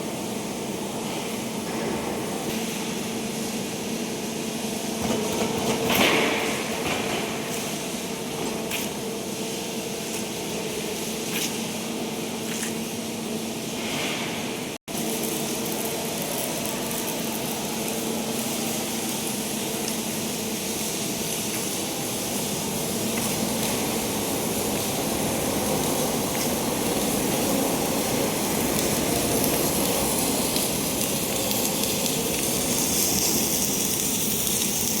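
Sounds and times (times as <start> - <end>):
low machine hum: 6.4 - 34.9
machine hiss: 13.6 - 35.0.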